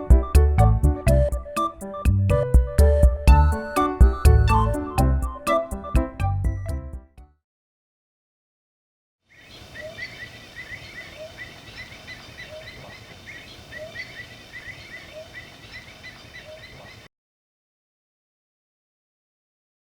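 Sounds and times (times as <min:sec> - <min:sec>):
birds chirping: 0:09.3 - 0:17.1.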